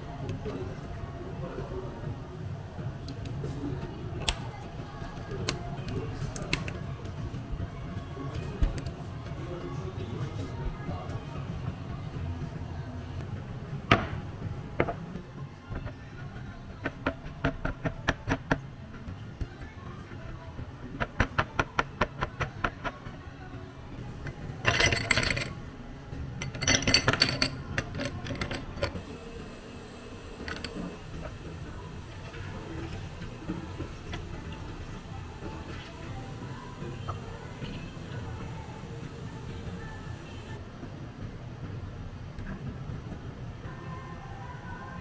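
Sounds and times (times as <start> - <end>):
quiet background music: 0.0 - 45.0
glassware clinking: 24.0 - 25.7, 26.4 - 29.1, 30.3 - 31.4.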